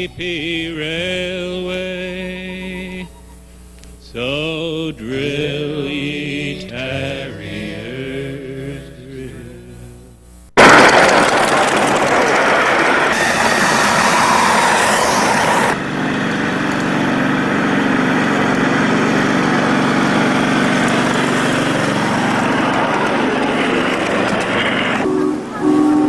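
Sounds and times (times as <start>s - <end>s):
small engine running: 10.6s - 25.1s
loud rushing noise: 10.6s - 25.6s.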